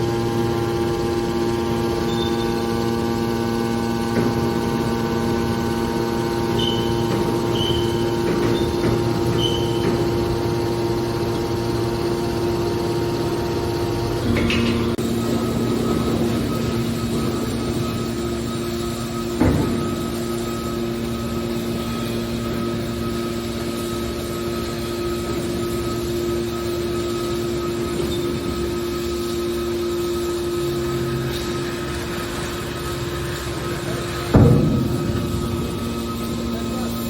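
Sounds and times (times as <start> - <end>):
baler machine hum: 0.0 - 37.0
machine knock: 4.0 - 12.8, 13.8 - 22.6, 32.4 - 37.0.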